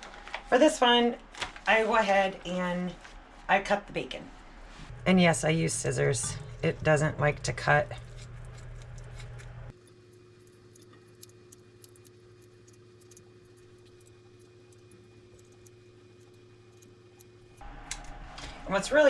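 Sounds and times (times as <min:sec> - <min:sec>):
low hum: 0:04.8 - 0:18.6
faint ticks and crackles: 0:09.7 - 0:17.6.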